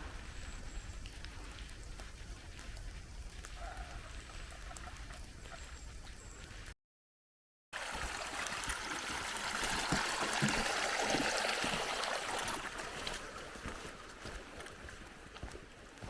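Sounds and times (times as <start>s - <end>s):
stream flowing: 7.8s - 15.4s.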